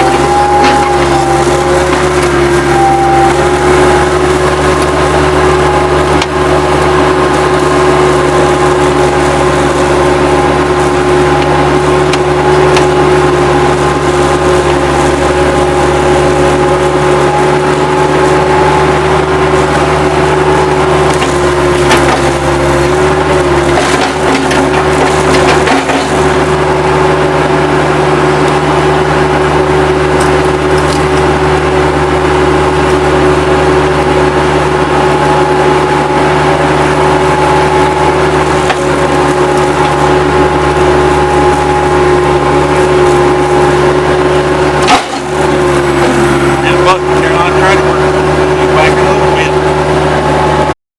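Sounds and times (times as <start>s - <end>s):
diesel engine under load: 0.0s - 50.8s
wood cracking and snapping: 21.0s - 22.5s, 23.6s - 26.3s, 38.3s - 40.1s.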